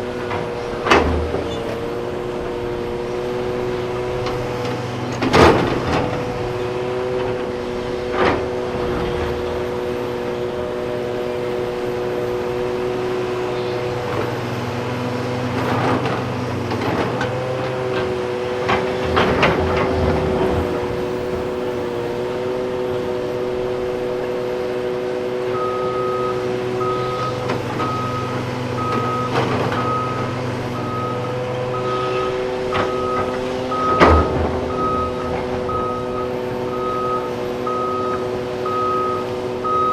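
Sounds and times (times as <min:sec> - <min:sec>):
heavy diesel engines running: 0:00.0 - 0:39.9
backup alarm beeping: 0:25.6 - 0:39.9.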